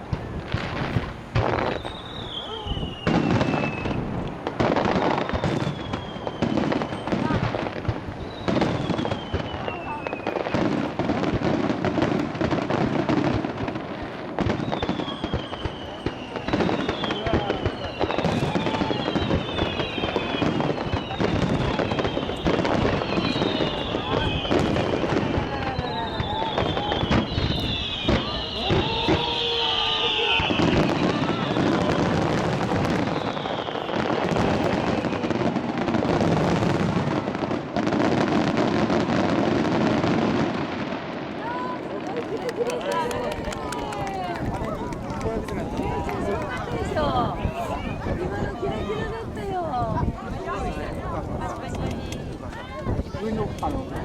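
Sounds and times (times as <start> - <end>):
fireworks booming and crackling: 0.0 - 54.0
faint falling whistles: 1.6 - 4.1, 5.2 - 7.2, 8.2 - 10.4, 14.6 - 24.9, 25.5 - 32.0, 32.9 - 34.3.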